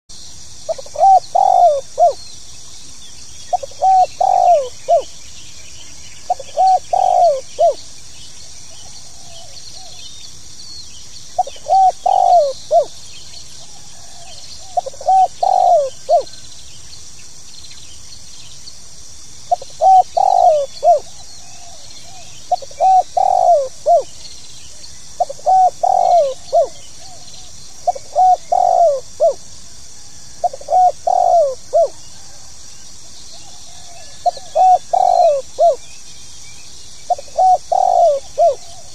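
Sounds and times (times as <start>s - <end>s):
steady high hiss: 0.1s - 38.9s
dove cooing: 0.7s - 2.2s, 3.5s - 5.2s, 6.3s - 7.9s, 11.4s - 13.0s, 13.6s - 16.4s, 19.5s - 24.2s, 25.2s - 35.8s, 37.1s - 38.9s.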